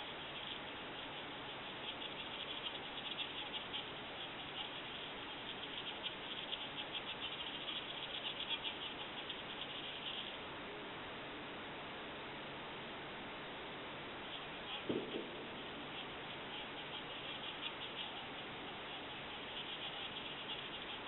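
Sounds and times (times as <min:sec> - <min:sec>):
high-pitched insect-like clicking: 0:00.0 - 0:10.4, 0:14.3 - 0:21.0
steady hiss: 0:00.0 - 0:21.0.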